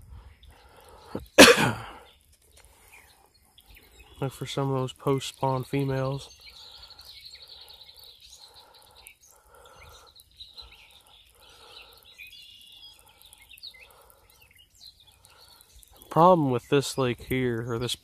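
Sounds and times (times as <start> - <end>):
faint birds chirping: 0.0 - 18.0.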